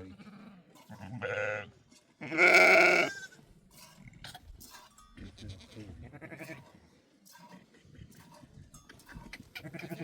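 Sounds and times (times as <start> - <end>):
livestock bleating: 1.0 - 3.3.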